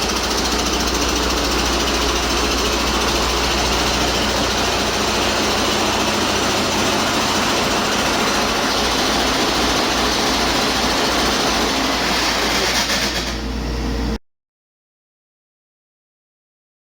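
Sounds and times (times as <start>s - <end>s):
diesel engine running steadily: 0.0s - 14.2s.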